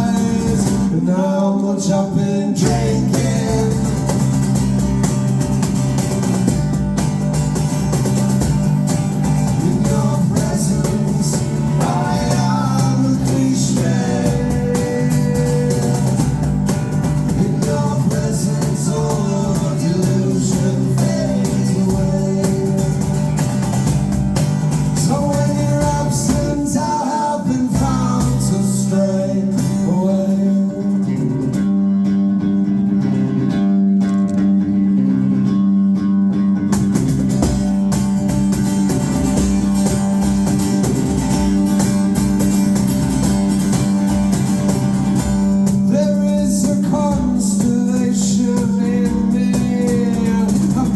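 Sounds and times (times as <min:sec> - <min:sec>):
person singing: 0:00.0 - 0:04.3, 0:09.5 - 0:16.4, 0:17.2 - 0:23.2, 0:25.0 - 0:31.6
live rock band: 0:00.0 - 0:50.9.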